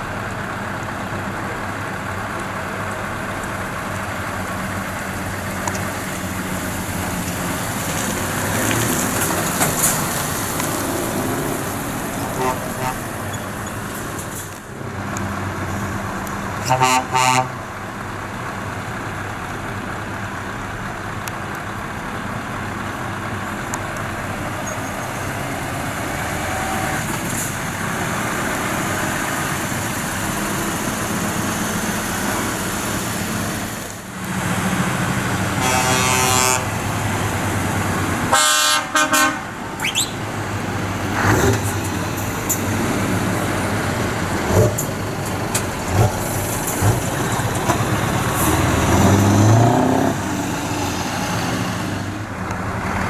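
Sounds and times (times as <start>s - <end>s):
lorry engines running: 0.0s - 53.0s
lorry horn blasts: 12.3s - 13.2s, 16.6s - 17.6s, 35.6s - 36.8s, 38.3s - 40.1s.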